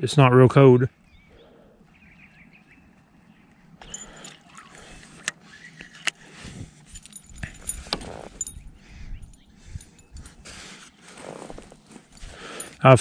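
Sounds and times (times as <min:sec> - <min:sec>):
handling noise rustling: 0:03.4 - 0:13.0.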